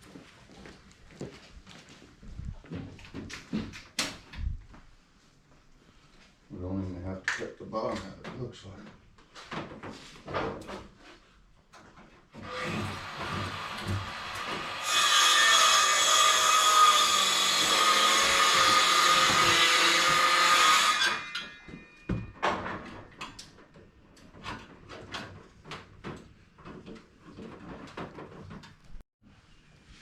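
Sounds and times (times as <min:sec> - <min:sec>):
handheld power tool running: 0:12.4 - 0:14.7.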